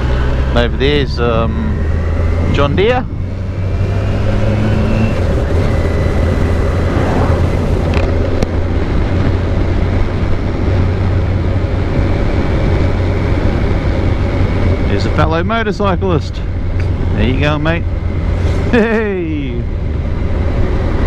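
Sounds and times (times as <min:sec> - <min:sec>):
motorcycle engine running: 0:00.0 - 0:21.0
wind rushing: 0:03.1 - 0:10.8.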